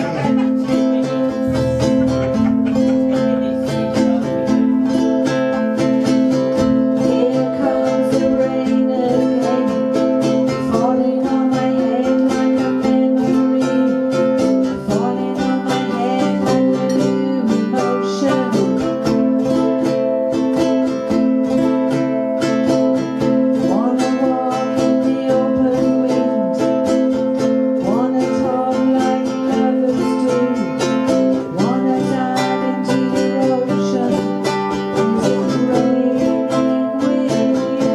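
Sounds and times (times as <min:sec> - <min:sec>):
ukuleles strumming chords: 0:00.0 - 0:37.9
wavering melody: 0:00.0 - 0:37.9.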